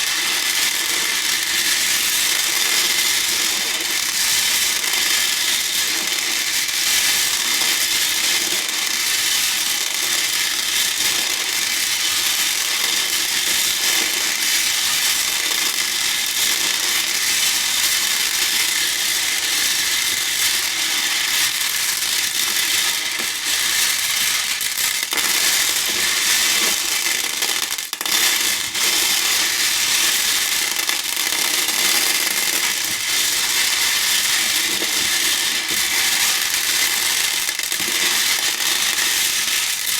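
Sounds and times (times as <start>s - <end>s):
beads clattering in a bowl: 22.8s - 39.9s.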